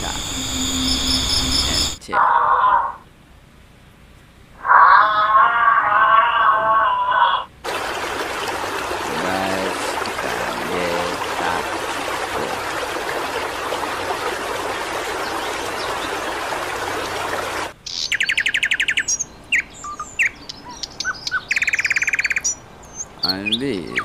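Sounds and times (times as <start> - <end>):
aquarium water flowing: 7.6 - 17.8
small birds chirping: 7.7 - 24.0.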